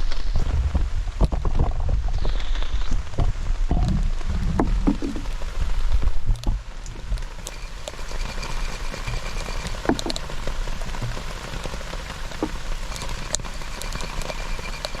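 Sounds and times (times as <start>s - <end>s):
low rumble: 0.0s - 7.4s
water rushing: 0.0s - 15.0s
small drips and ticks: 2.1s - 15.0s.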